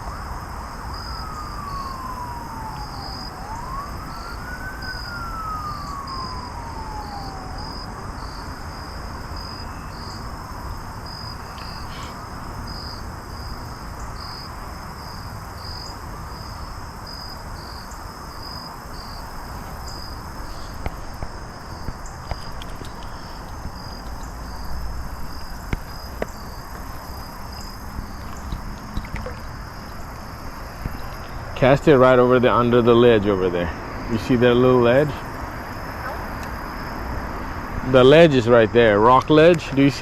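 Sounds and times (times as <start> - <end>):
distant siren wailing: 0.0 - 40.0
insects chirping: 0.0 - 40.0.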